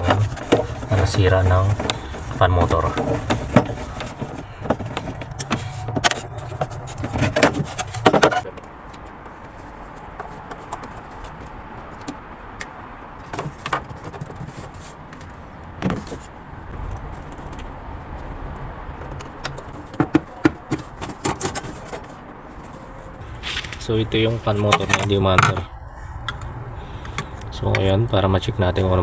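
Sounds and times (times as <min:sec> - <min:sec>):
plastic cover clicking and rattling: 0:00.0 - 0:09.1, 0:19.0 - 0:22.3.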